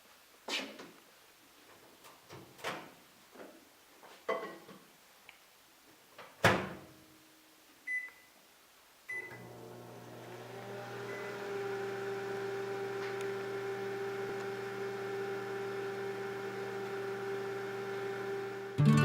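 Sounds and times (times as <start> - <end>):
microwave oven humming: 9.1 - 19.0.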